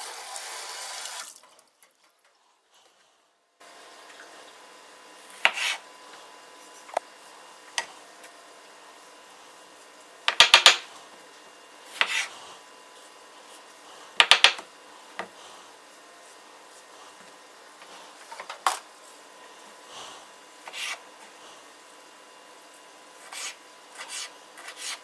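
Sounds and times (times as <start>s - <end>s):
knife chopping on cutting board: 5.4s - 5.8s, 10.3s - 10.8s, 12.0s - 12.3s, 14.2s - 14.6s
kitchen utensils knocking and scraping: 10.3s - 10.9s, 14.2s - 14.6s.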